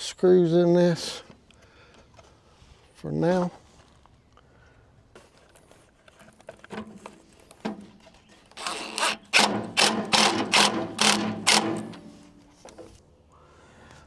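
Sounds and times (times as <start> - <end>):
power drill driving screws: 8.6 - 12.6.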